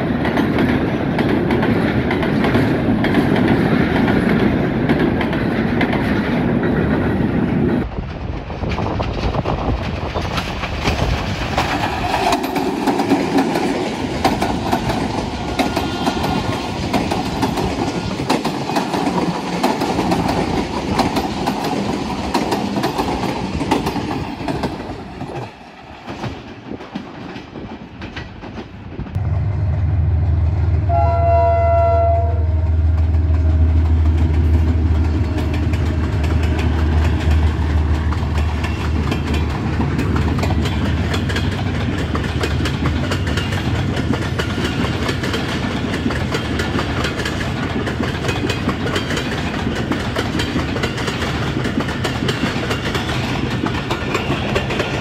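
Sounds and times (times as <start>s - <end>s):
train wheels clattering: 0.0s - 29.2s, 32.7s - 55.0s
diesel locomotive engine drone: 28.6s - 55.0s
train horn blast: 30.7s - 34.1s.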